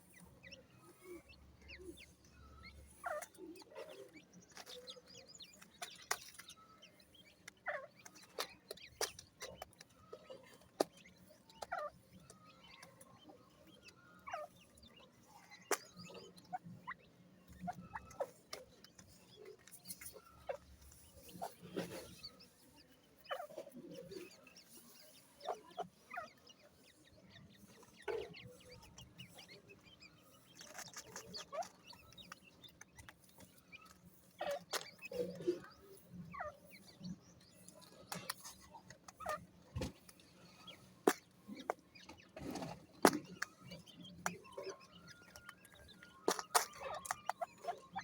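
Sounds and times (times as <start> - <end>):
chicks peeping: 0.0 - 48.0.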